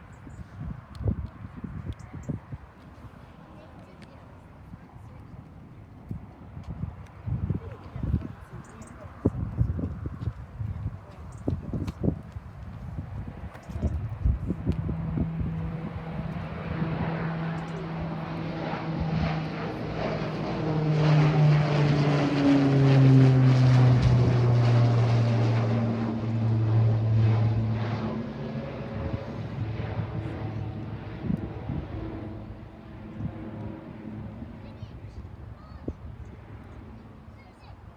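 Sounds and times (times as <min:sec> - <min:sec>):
airliner passing close by: 0:00.0 - 0:37.9.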